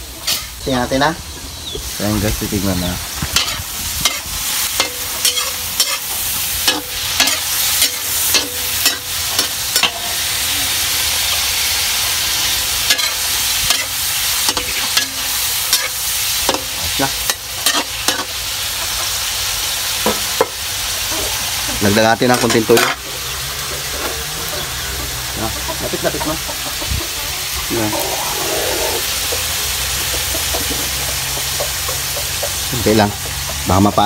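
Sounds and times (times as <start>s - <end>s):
meat sizzling in a wok: 0.0s - 34.0s
metal spoon scraping a wok: 3.4s - 10.3s, 12.2s - 18.4s.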